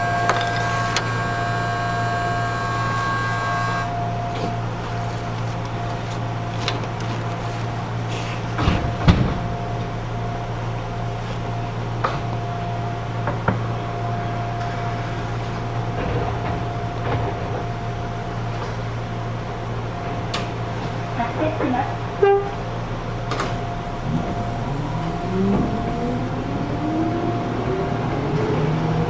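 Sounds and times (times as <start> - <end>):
air conditioning hum: 0.0 - 29.0
knocks and clunks: 8.6 - 9.9, 23.2 - 29.0.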